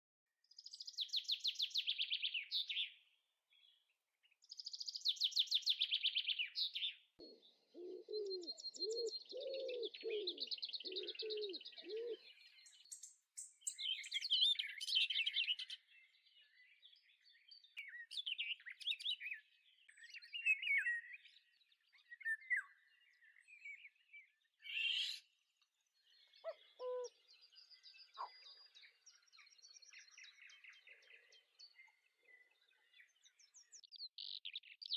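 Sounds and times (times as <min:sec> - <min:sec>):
birds chirping and trilling: 0:00.5 - 0:34.9
low bird call: 0:26.4 - 0:27.2.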